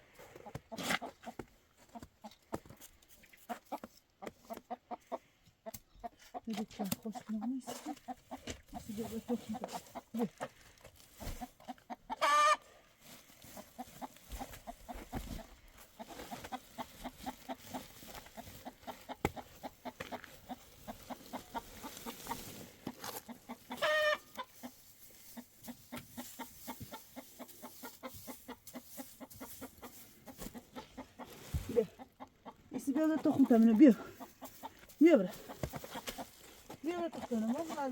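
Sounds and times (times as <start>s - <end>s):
chickens clucking: 0.2s - 10.6s, 11.2s - 37.9s
chicken high calls: 11.7s - 12.7s, 23.2s - 24.8s.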